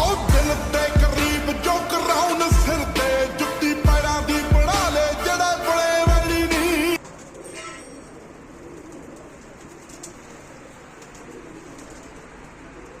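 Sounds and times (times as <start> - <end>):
pigeons cooing: 0.0 - 4.8, 7.0 - 13.0.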